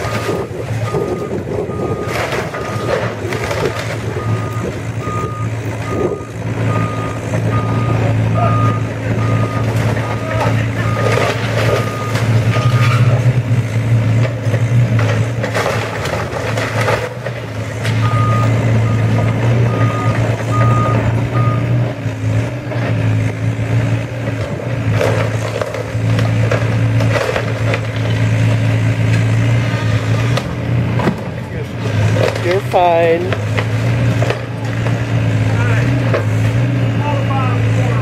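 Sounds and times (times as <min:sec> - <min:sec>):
reversing alarm beeping: 0:00.0 - 0:02.9, 0:04.1 - 0:13.1, 0:18.0 - 0:21.8
diesel demolition machinery running: 0:00.0 - 0:38.0
house cracking and crunching: 0:02.1 - 0:04.2, 0:09.6 - 0:13.3, 0:14.1 - 0:18.0, 0:24.3 - 0:28.6.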